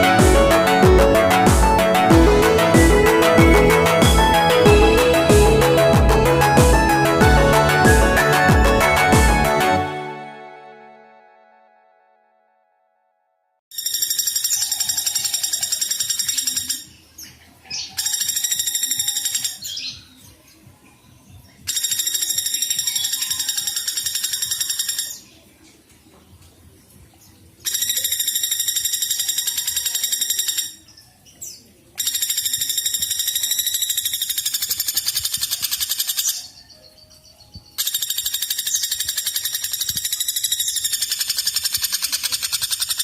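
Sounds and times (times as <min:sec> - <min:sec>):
woodpecker trilling: 0:13.7 - 0:17.0, 0:17.8 - 0:19.8, 0:21.7 - 0:25.2, 0:27.7 - 0:30.8, 0:32.0 - 0:36.6, 0:37.7 - 0:43.0.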